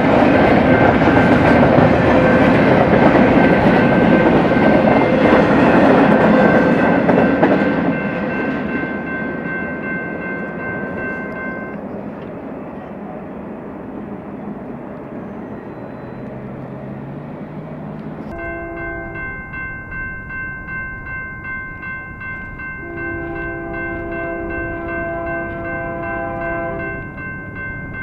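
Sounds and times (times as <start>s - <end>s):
train cars rolling past: 0.0s - 28.0s
high-pitched ringing tone: 18.3s - 28.0s.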